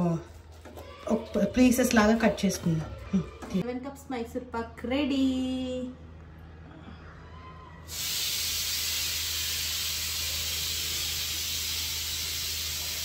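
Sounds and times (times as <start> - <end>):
steady hiss: 7.9 - 13.0.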